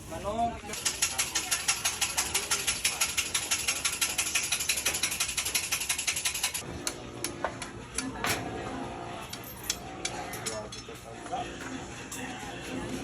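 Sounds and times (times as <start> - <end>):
fast mechanical clicking: 0.8 - 6.6.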